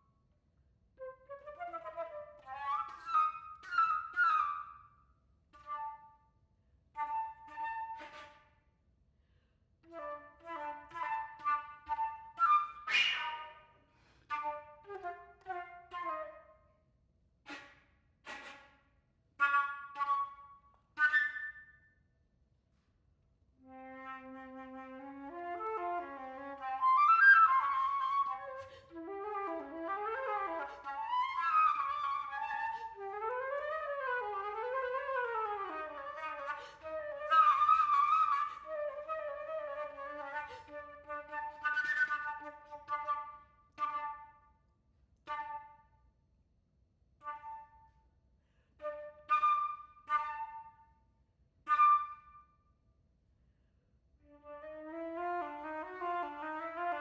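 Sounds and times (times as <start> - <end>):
solo flute playing: 1.0 - 4.9, 7.0 - 8.4, 9.9 - 13.7, 14.3 - 16.7, 19.4 - 21.6, 23.6 - 44.5, 47.2 - 48.0, 48.8 - 50.9, 51.7 - 52.5, 54.2 - 57.0.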